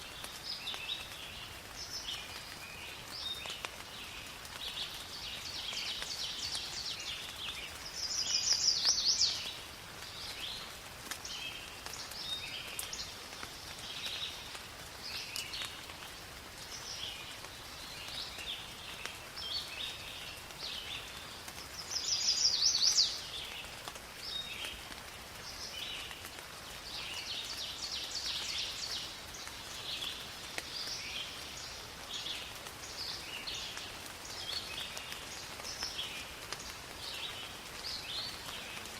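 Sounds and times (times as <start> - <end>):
light rain: 0.0 - 38.9
birds chirping and singing: 6.0 - 9.6, 21.8 - 23.3.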